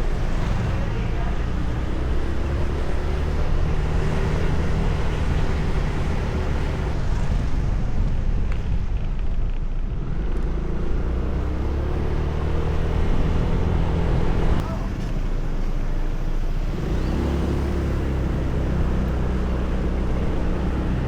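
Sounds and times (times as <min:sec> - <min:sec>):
steady low rumble: 0:00.0 - 0:12.1.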